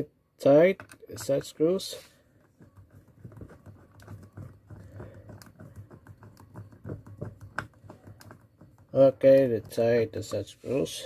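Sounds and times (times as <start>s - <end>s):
small metal and plastic clicks: 0.7s - 1.5s.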